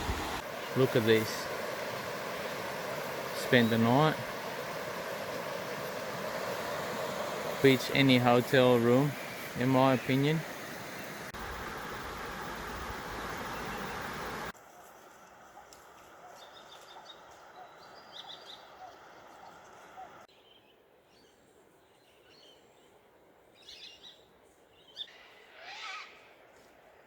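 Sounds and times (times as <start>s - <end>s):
outdoor ambient hiss: 0.0s - 27.0s
faint bird calls and chirps: 13.1s - 26.4s.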